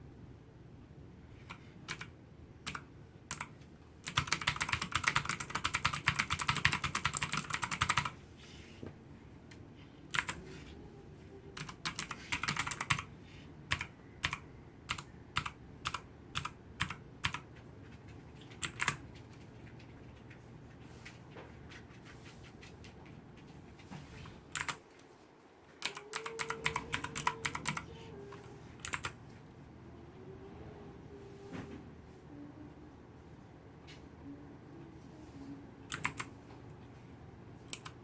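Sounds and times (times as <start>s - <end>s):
clicky keyboard typing: 1.4s - 2.1s, 2.7s - 8.2s, 10.1s - 10.4s, 11.6s - 13.1s, 13.7s - 20.4s, 24.5s - 24.8s, 25.8s - 29.2s, 35.9s - 36.3s, 37.7s - 38.0s.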